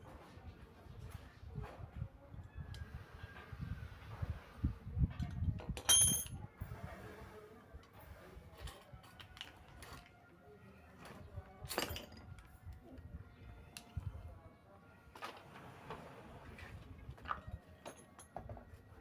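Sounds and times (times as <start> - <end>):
metal parts clinking: 5.8 - 6.4
ringing metallic clink: 5.8 - 6.4.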